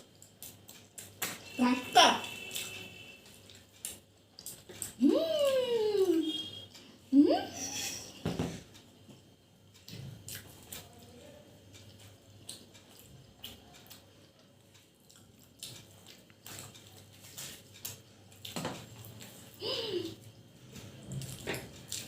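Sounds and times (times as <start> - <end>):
quiet chewing: 0.0 - 1.6, 2.3 - 7.1, 8.6 - 19.6, 20.2 - 22.0.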